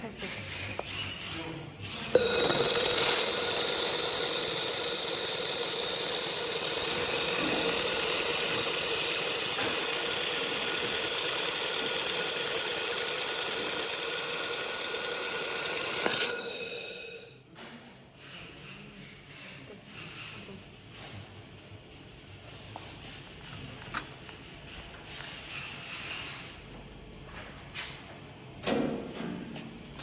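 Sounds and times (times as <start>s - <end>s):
laser welder hissing and whining: 2.2s - 17.4s.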